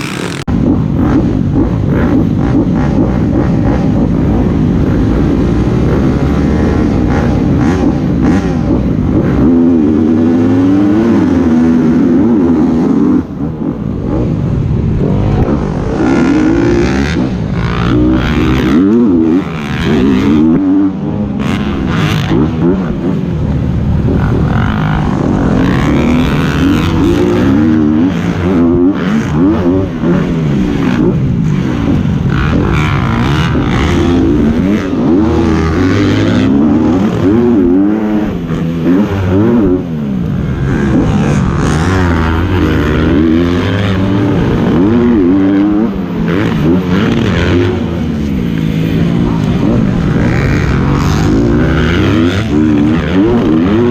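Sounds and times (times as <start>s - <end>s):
dirt bike engines revving: 0.0s - 53.9s.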